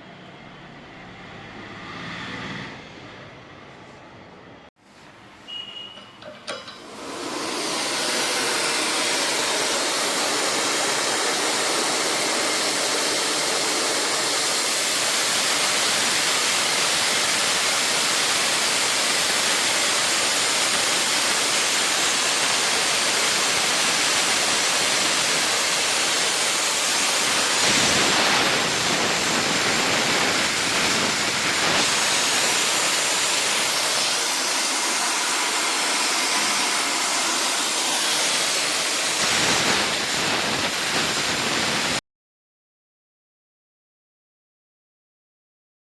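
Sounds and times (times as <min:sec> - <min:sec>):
gas rushing hiss: 0:06.5 - 0:42.0.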